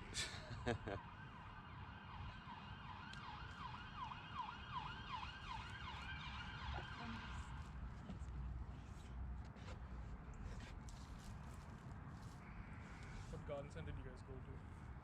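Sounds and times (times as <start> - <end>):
low rumble of wind or traffic: 0.0 - 15.0
emergency siren yelping: 0.9 - 7.6.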